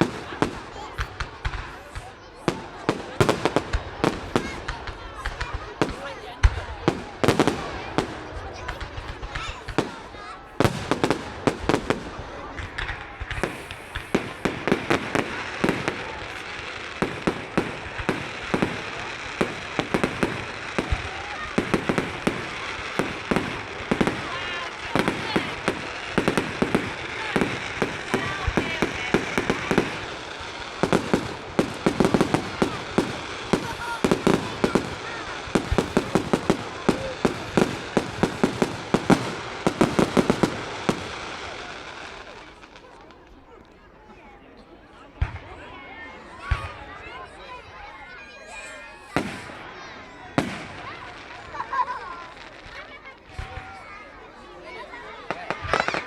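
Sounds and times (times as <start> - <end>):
fireworks bangs: 0.0 - 43.8, 45.0 - 56.0.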